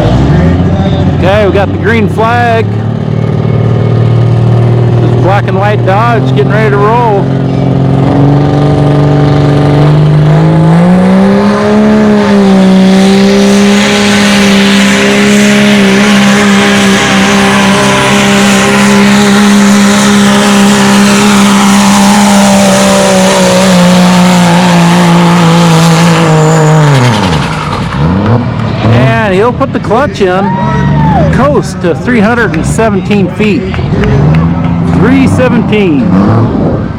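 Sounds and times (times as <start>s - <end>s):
pickup engine at full throttle: 0.0s - 36.9s.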